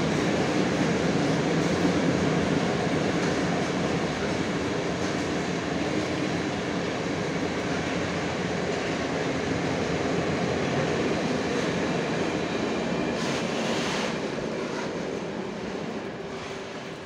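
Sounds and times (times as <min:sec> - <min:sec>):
freight train rumbling past: 0:00.0 - 0:17.0
brief high hiss: 0:13.2 - 0:14.2.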